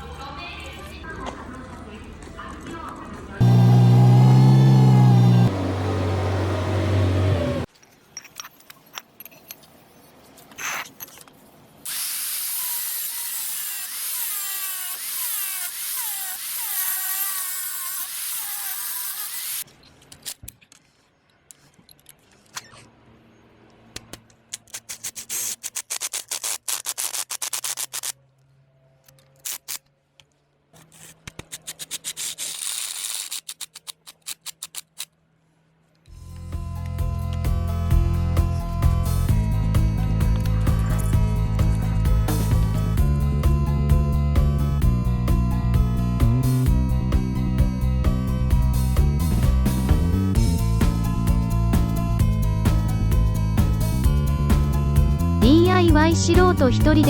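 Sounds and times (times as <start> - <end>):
power tool whining: 3.4 - 7.7, 11.9 - 19.6.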